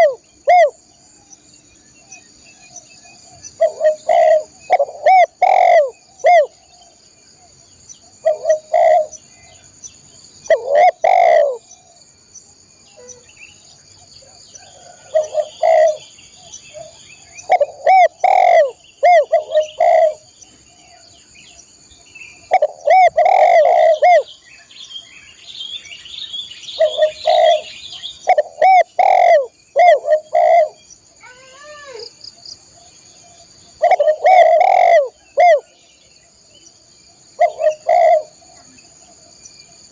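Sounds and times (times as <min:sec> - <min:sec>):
dove cooing: 0:00.0 - 0:00.8, 0:03.1 - 0:07.0, 0:08.2 - 0:09.5, 0:10.4 - 0:12.0, 0:14.2 - 0:16.1, 0:16.7 - 0:20.9, 0:22.5 - 0:24.3, 0:26.8 - 0:31.4, 0:33.8 - 0:35.7, 0:37.4 - 0:38.9.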